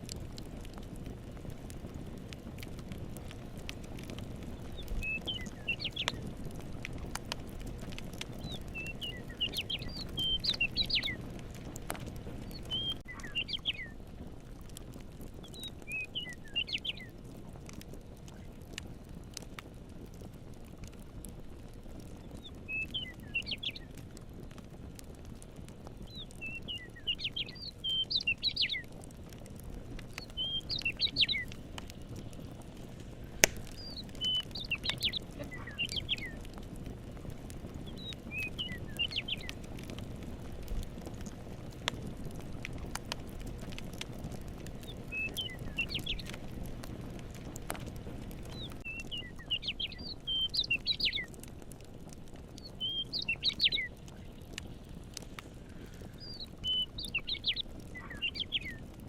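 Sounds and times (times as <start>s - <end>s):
campfire crackling: 0.0s - 59.0s
low background rumble: 0.0s - 59.0s
songbird singing: 4.4s - 6.3s, 8.2s - 11.3s, 12.3s - 14.0s, 15.4s - 17.2s, 22.2s - 24.2s, 26.0s - 29.0s, 30.0s - 32.2s, 33.3s - 36.6s, 37.7s - 39.6s, 44.7s - 46.4s, 48.4s - 51.4s, 52.6s - 54.7s, 55.8s - 58.8s
sharp pop from fire: 33.0s - 36.1s.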